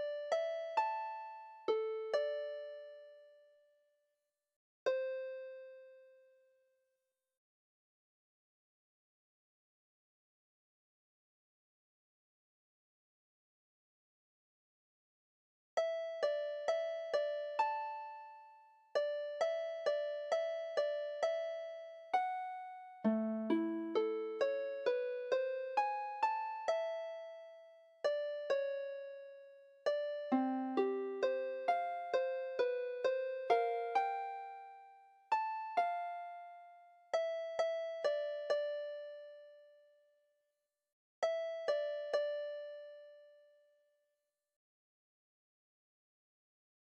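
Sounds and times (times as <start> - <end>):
slow melody of ringing notes: 19.0 - 27.3, 28.1 - 39.6
piano-like melody: 23.0 - 27.3, 29.8 - 34.6.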